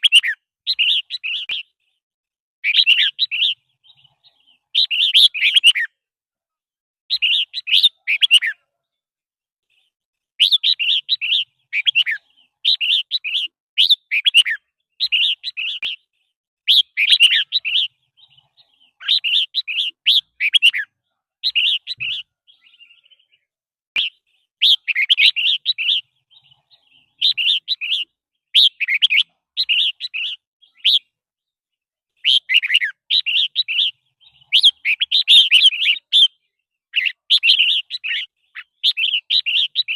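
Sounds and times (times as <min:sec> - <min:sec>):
bird singing chirpy phrases: 0:00.0 - 0:02.0, 0:02.6 - 0:06.1, 0:07.1 - 0:39.9.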